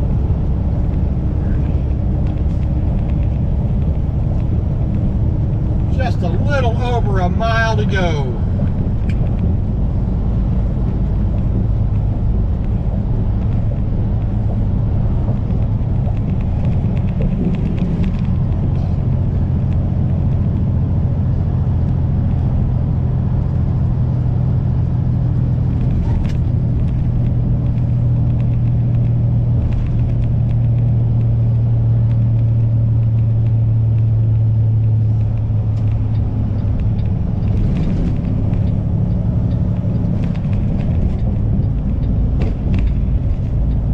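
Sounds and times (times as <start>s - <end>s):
diesel truck engine droning: 0.0s - 43.9s
road noise: 0.0s - 43.9s.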